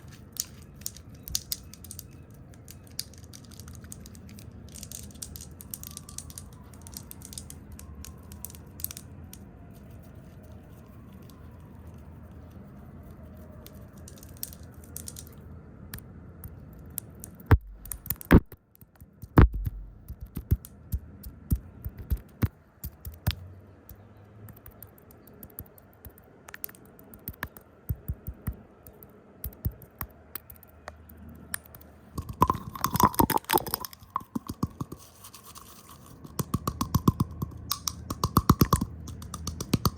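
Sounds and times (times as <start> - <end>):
sharp taps and clicks: 17.2 - 23.4, 24.5 - 39.9
brushing rustle: 34.8 - 36.4.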